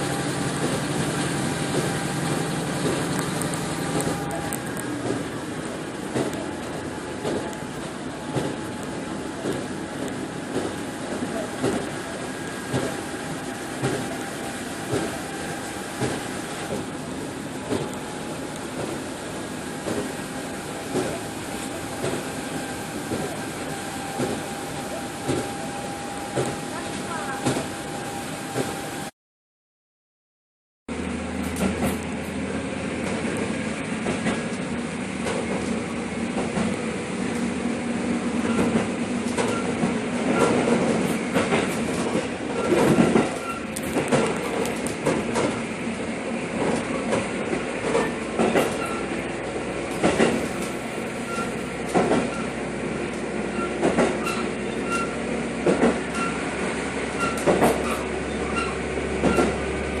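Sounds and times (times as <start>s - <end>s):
train rumble: 0.0s - 29.1s, 30.9s - 60.0s
train wheels knocking over rail joints: 0.1s - 7.6s, 9.4s - 13.2s, 13.8s - 14.2s, 14.8s - 15.3s, 16.0s - 17.0s, 19.8s - 20.2s, 24.0s - 24.5s, 33.0s - 37.6s, 38.4s - 45.7s, 46.5s - 52.6s, 53.2s - 56.4s, 57.1s - 59.7s.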